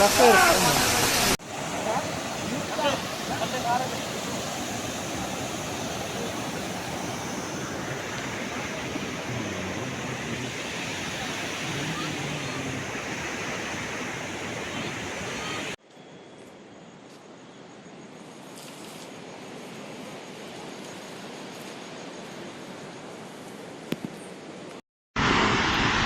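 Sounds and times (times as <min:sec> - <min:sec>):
water rushing in heavy rain: 0:00.0 - 0:15.8.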